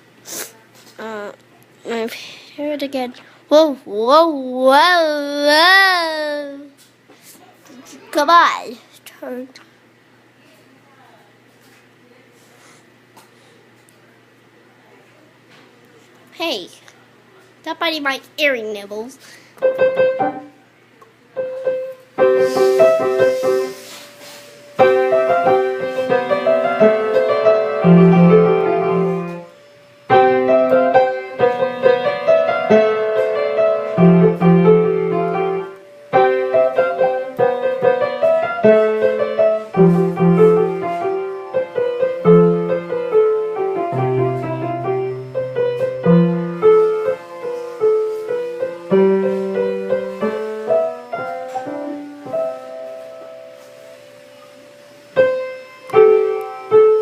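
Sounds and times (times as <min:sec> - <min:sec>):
piano music: 0:19.6 - 0:20.6, 0:21.4 - 0:23.9, 0:24.6 - 0:54.4, 0:55.1 - 0:57.0.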